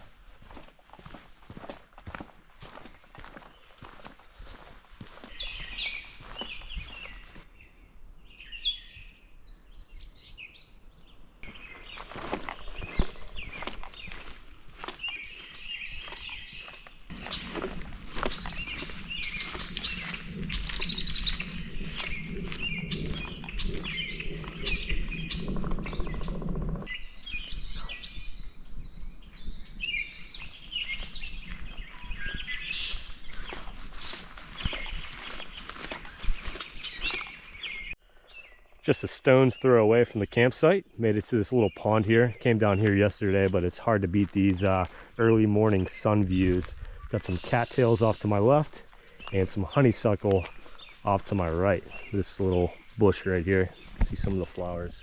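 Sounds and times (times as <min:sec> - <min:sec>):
footsteps: 0:00.0 - 0:07.5, 0:11.4 - 0:26.9, 0:29.7 - 0:37.6
birds chirping: 0:00.0 - 0:55.0
low rumble: 0:17.1 - 0:26.9.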